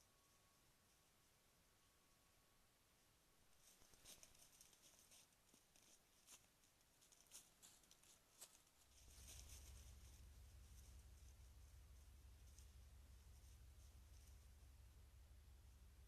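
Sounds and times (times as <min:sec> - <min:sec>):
faint rustles and ticks: 0:03.5 - 0:15.1
low rumble: 0:08.9 - 0:16.0.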